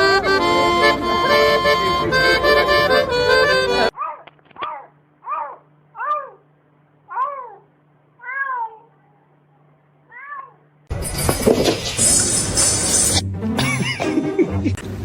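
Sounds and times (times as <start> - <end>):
cat meowing: 8.2 - 9.0, 10.1 - 10.6.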